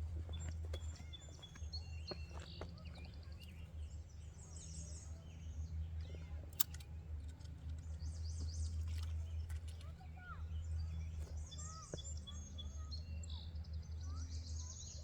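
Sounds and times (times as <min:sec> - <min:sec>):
birds chirping and trilling: 0:00.0 - 0:06.3
steady low hum: 0:00.0 - 0:12.8.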